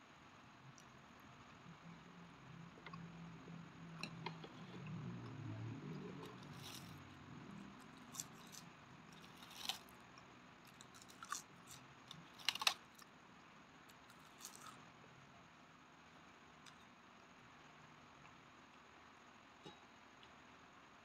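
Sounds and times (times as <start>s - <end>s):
chewing food with crisp crackles: 0.6s - 14.9s
biting dried seaweed: 6.0s - 13.1s, 14.0s - 14.8s.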